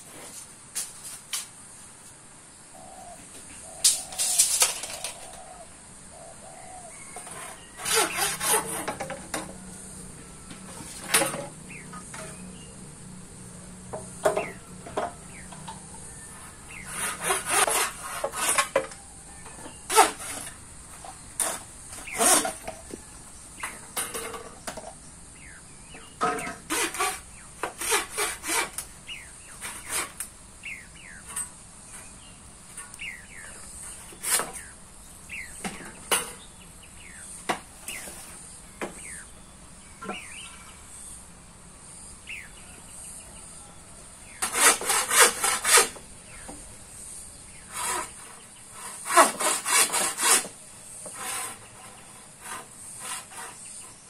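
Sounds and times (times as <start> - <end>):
steady high hiss: 0.0 - 54.0
quick scraping strokes: 7.1 - 10.0, 16.0 - 19.0, 19.8 - 22.9, 26.4 - 30.3, 33.8 - 34.7, 44.3 - 46.4, 47.1 - 54.0.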